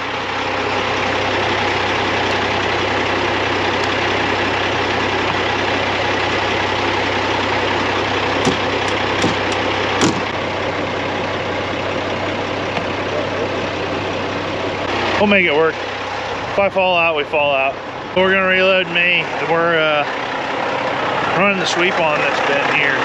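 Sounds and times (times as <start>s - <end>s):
truck engine idling: 0.0s - 23.0s
sharp clicks or knocks: 8.4s - 10.3s.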